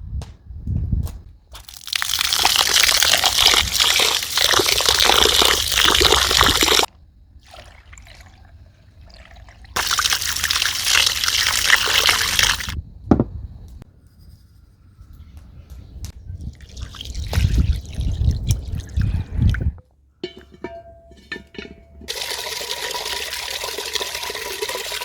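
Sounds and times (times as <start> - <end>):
water running in a stream: 1.6 - 12.8, 22.1 - 25.0
thump: 13.1 - 13.4.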